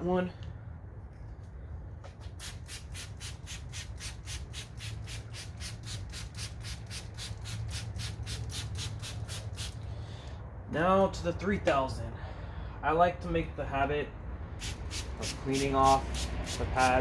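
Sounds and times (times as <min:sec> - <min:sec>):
wet sanding pad rubbing: 0:14.7 - 0:17.0.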